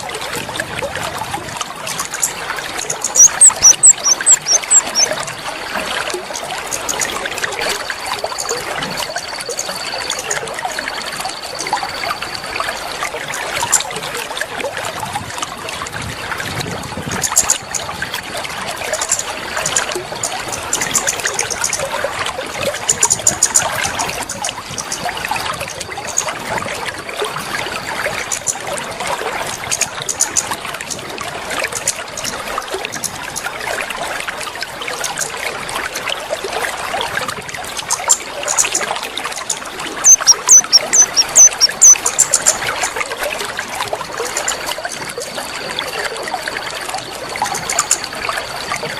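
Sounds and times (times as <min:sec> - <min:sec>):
water trickling and splashing: 0:00.0 - 0:48.9
bird whistles and chirps: 0:03.1 - 0:05.1, 0:40.1 - 0:42.0.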